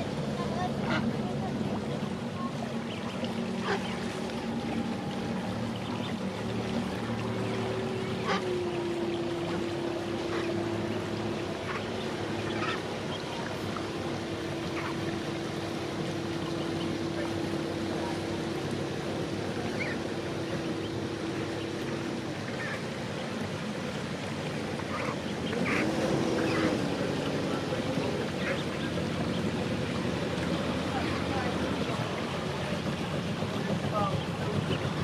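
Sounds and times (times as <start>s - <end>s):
boat engine humming: 0.0s - 35.0s
ducks or geese calling: 2.9s - 4.2s, 7.4s - 13.4s, 14.6s - 15.1s, 19.6s - 21.9s, 24.8s - 27.0s.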